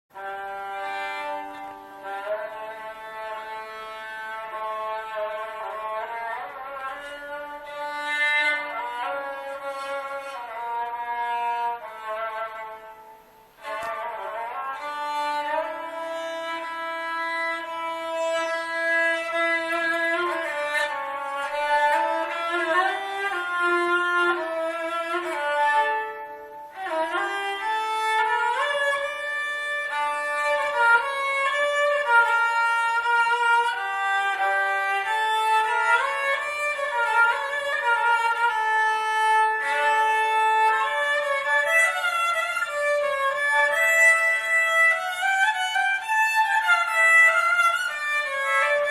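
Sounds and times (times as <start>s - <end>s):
bowed lyra melody: 0.2s - 48.9s.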